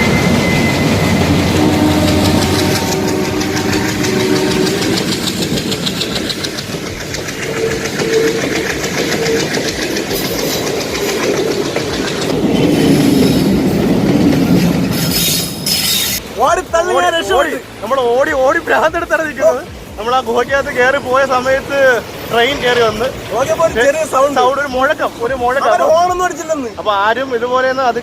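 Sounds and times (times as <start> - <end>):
wheels clattering over rail joints: 0.0 - 16.4
train rumbling in tunnel: 0.0 - 28.0.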